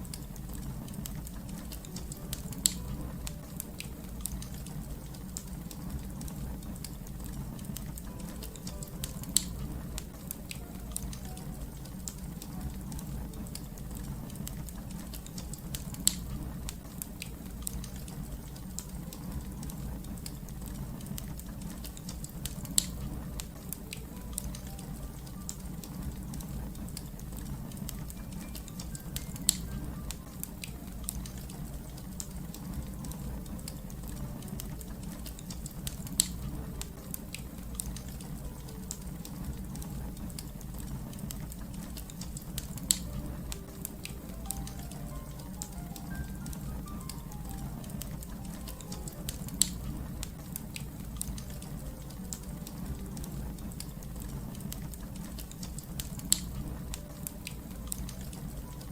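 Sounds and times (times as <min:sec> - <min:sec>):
wood fire crackling and popping: 0:00.0 - 0:58.9.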